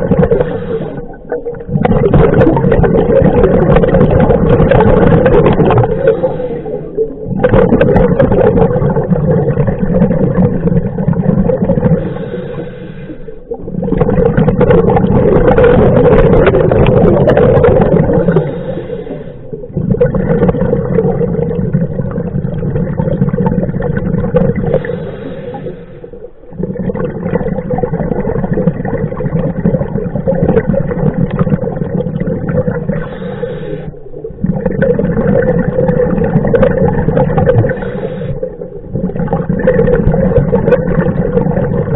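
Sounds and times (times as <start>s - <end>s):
diver breathing through regulator: 0.0s - 1.5s, 4.8s - 7.2s, 11.8s - 13.6s, 17.8s - 19.8s, 24.6s - 26.4s, 32.8s - 34.4s, 37.4s - 38.9s
exhaled bubbles gurgling: 0.0s - 41.9s.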